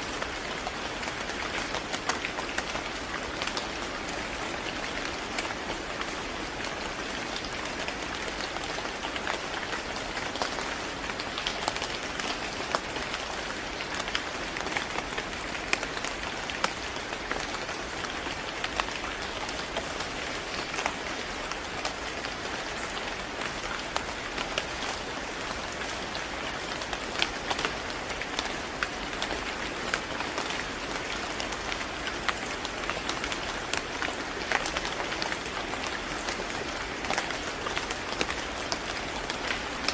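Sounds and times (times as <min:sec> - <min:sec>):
steady rain hiss: 0:00.0 - 0:39.9
raindrops tapping: 0:28.3 - 0:39.9.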